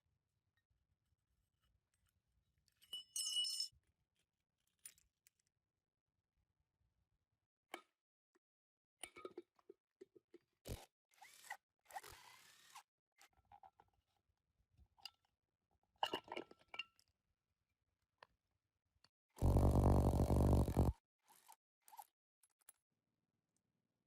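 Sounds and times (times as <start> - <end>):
loud steady buzz: 19.4 - 20.9.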